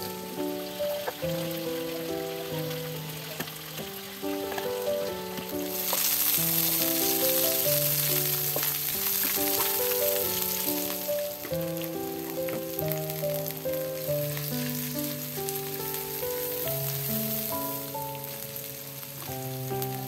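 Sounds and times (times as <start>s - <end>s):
light background music: 0.0s - 20.0s
vegetables sizzling in oil: 0.0s - 20.0s
wooden spatula stirring: 2.8s - 11.6s.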